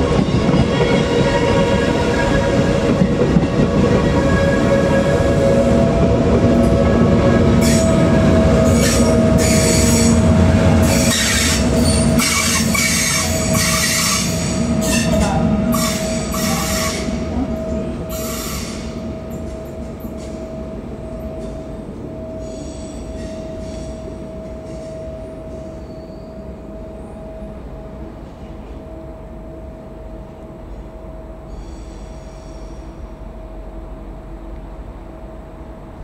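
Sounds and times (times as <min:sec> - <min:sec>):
train whine and rumble: 0:00.0 - 0:36.0
train wheels squealing: 0:07.6 - 0:20.5, 0:21.1 - 0:26.6, 0:31.5 - 0:33.1.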